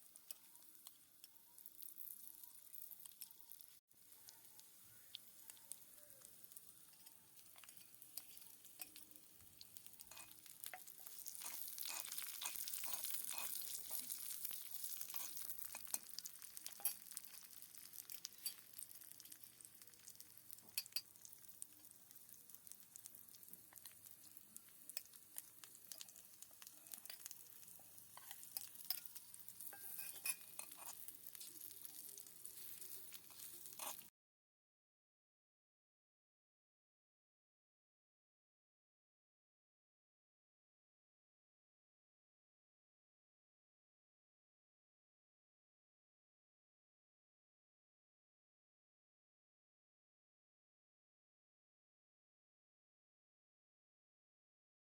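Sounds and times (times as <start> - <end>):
food sizzling in a pan: 0.0 - 34.1
utensil clicking and scraping: 32.5 - 34.1.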